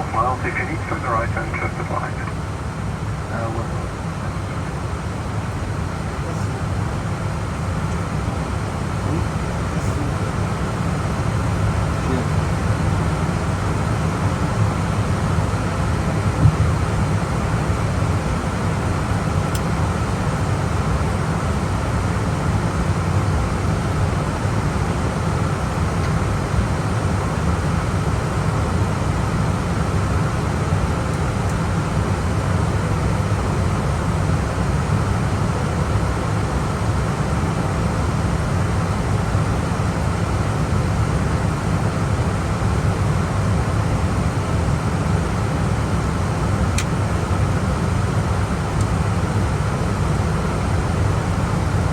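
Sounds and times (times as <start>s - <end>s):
strong low hum: 16.2s - 17.6s.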